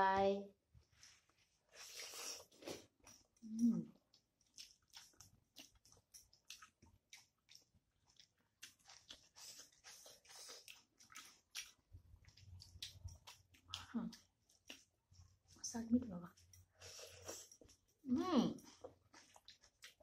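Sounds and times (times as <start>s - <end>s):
chewing and mouth smacks: 1.8s - 15.3s, 18.6s - 20.0s.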